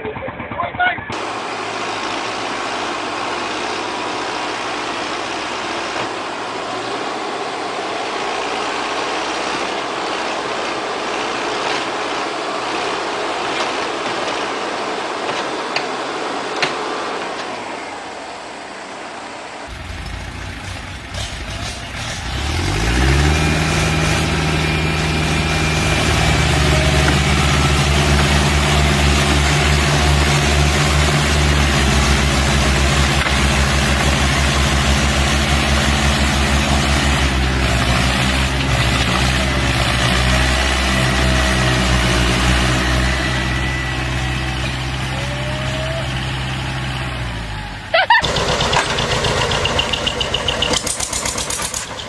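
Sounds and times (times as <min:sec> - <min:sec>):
heavy vehicle engine revving: 0:19.7 - 0:52.0.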